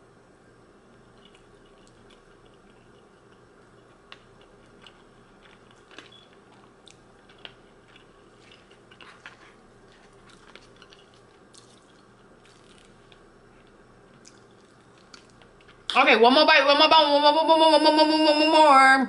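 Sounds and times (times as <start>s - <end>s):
chewing and smacking: 0.9s - 15.9s.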